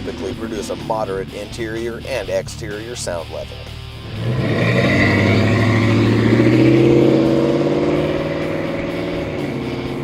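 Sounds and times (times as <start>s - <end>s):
truck engine revving: 3.4s - 10.0s.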